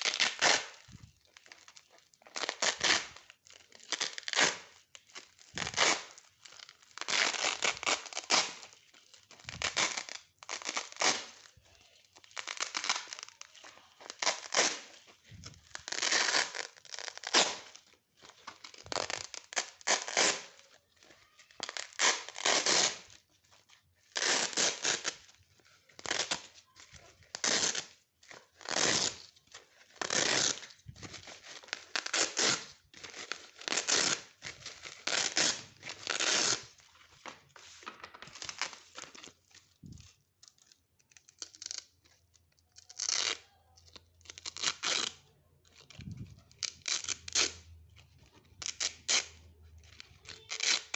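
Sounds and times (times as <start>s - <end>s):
velcro strips ripping: 0.0s - 17.8s, 18.4s - 23.2s, 24.0s - 25.4s, 26.0s - 26.6s, 27.2s - 36.8s, 40.6s - 47.8s, 48.4s - 50.9s.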